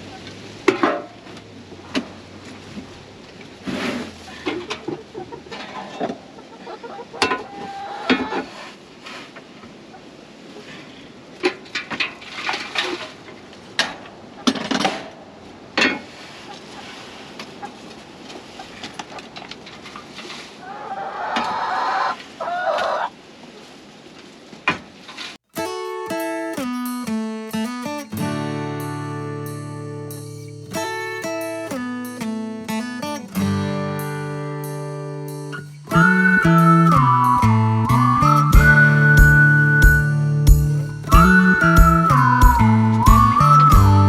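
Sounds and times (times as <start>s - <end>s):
chickens clucking: 3.8s - 8.8s, 16.3s - 19.4s, 20.2s - 23.1s
sharp knocks and rustles: 11.4s - 15.2s.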